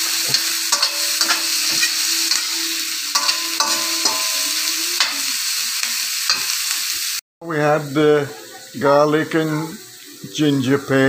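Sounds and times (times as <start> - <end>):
metal spoon scraping a pan: 0.0 - 6.9
onions sizzling in hot oil: 0.0 - 11.0.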